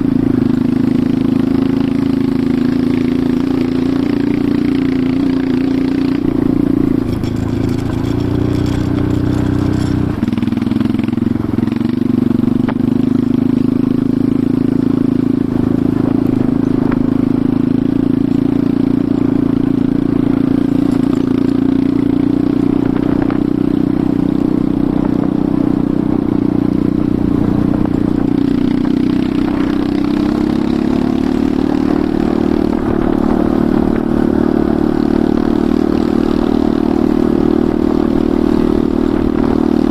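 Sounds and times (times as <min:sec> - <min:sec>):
motorcycle engine running: 0:00.0 - 0:39.9
clatter: 0:05.4 - 0:12.8, 0:20.4 - 0:23.7.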